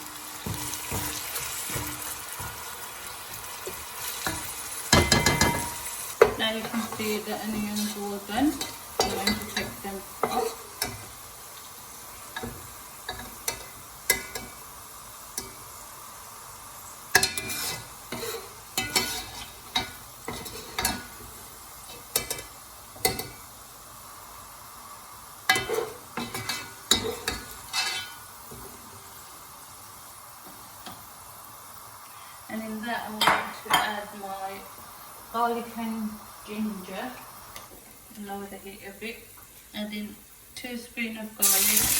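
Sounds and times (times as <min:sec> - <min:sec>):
spoon scraping and knocking pan: 0:00.0 - 0:11.5, 0:12.1 - 0:14.7, 0:15.3 - 0:15.8, 0:17.1 - 0:23.5, 0:25.5 - 0:29.2
onions sizzling in hot oil: 0:00.0 - 0:41.9.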